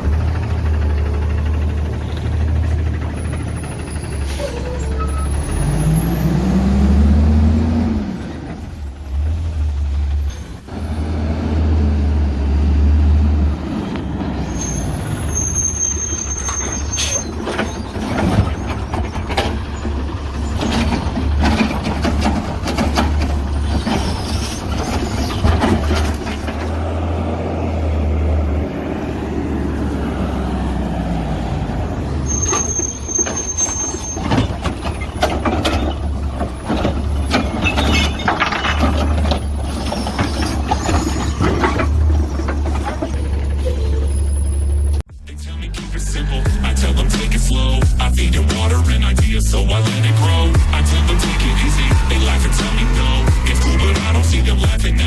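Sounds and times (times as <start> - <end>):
garbage truck engine revving: 0.0 - 55.0
cart clattering knocks: 17.5 - 26.8, 34.2 - 43.2.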